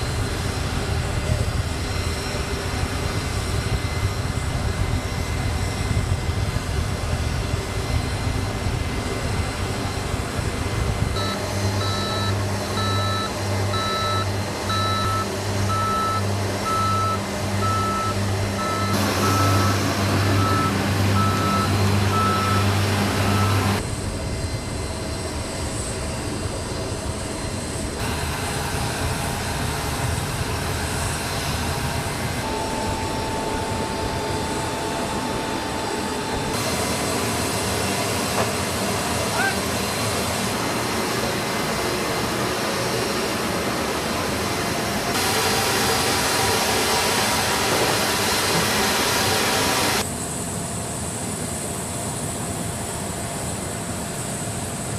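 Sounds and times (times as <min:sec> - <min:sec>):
reversing alarm beeping: 0:11.2 - 0:23.8, 0:32.4 - 0:37.1
vehicle engine running: 0:11.2 - 0:23.8.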